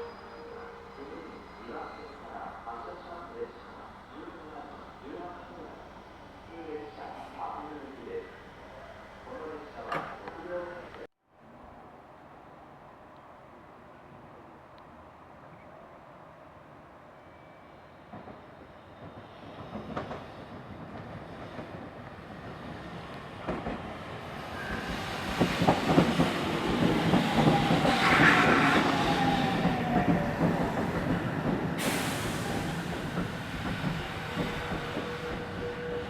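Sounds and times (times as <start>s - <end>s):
train passing on rails: 0.0s - 11.1s, 12.0s - 36.0s
wheel squeal: 27.1s - 30.1s.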